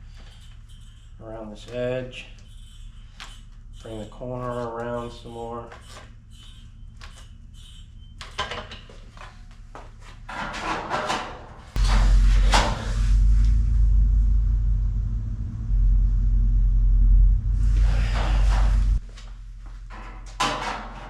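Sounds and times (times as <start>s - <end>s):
loud low hum: 11.8s - 19.7s.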